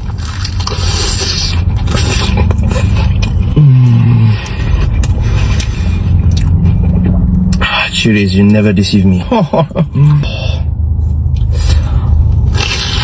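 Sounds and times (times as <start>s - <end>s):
low steady rumble: 0.0s - 13.0s
person humming mmm: 3.5s - 4.7s.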